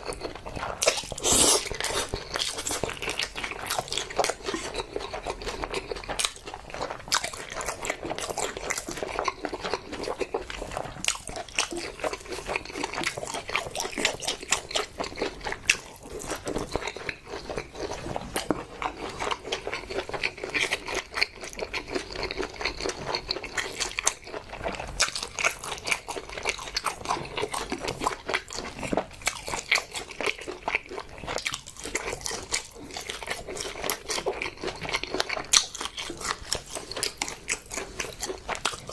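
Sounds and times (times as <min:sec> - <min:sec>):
person chewing: 0:00.0 - 0:38.9.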